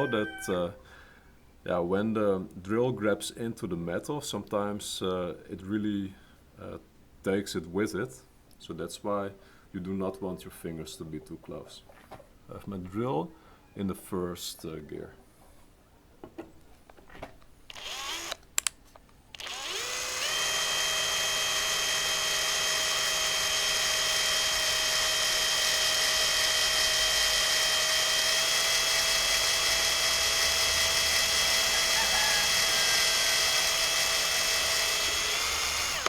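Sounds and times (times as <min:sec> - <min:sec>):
power drill whining: 0:17.7 - 0:18.4, 0:19.3 - 0:36.0
drill clicks: 0:17.7 - 0:36.0.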